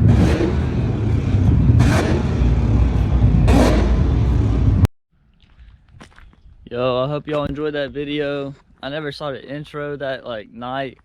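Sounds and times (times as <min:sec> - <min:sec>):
car engine running hard: 0:00.0 - 0:04.9.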